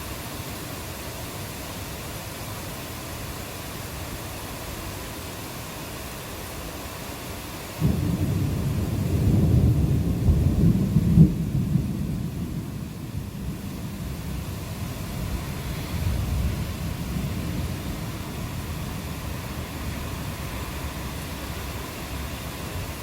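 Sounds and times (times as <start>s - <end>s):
rain falling: 0.0s - 23.0s
thunder rumbling: 7.8s - 21.6s.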